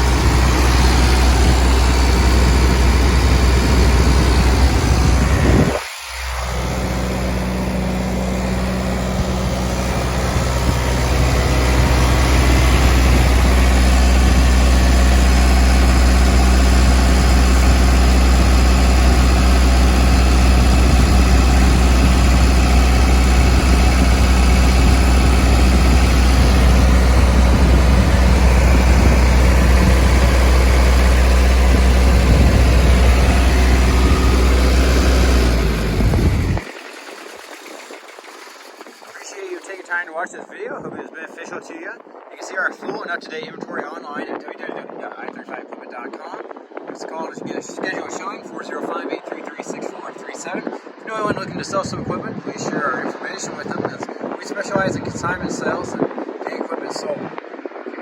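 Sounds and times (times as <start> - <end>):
diesel generator running: 0.0 - 40.1, 53.6 - 56.3.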